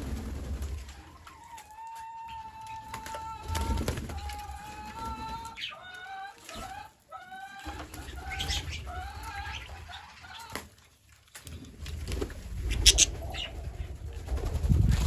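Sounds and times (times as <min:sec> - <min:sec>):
parrots calling: 0:12.7 - 0:13.5.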